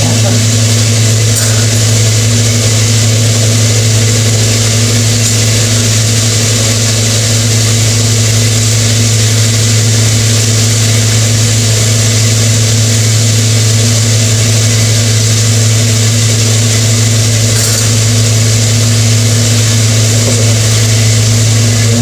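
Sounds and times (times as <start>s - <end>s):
gas burners humming: 0.0s - 22.0s.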